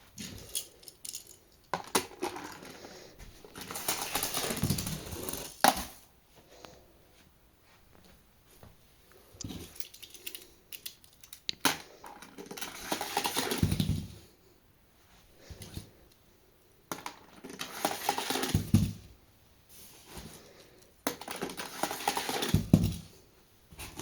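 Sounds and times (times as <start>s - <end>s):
toy cars rolling on track: 3.5s - 5.8s, 9.8s - 13.8s, 16.9s - 18.7s, 21.1s - 22.8s.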